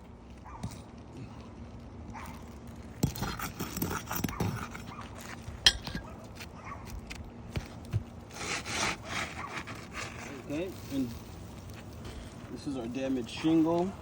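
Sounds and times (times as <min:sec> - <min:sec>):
knocks and scrapes on shingle roof: 0:02.4 - 0:10.8.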